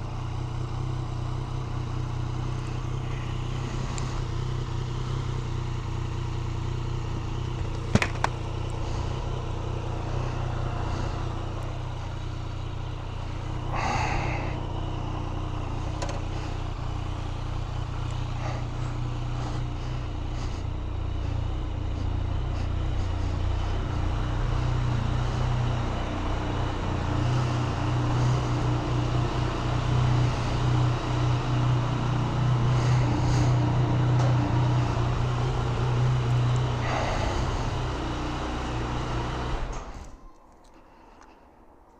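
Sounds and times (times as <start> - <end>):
motorcycle engine running: 0.0 - 40.2.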